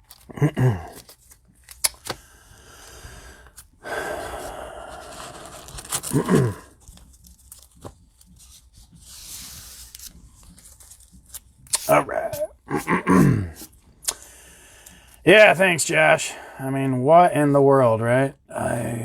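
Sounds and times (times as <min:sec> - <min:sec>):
falling vocal groan: 0:00.3 - 0:00.9, 0:06.1 - 0:06.7, 0:11.9 - 0:13.6
packaging rustling and tearing: 0:04.4 - 0:11.9.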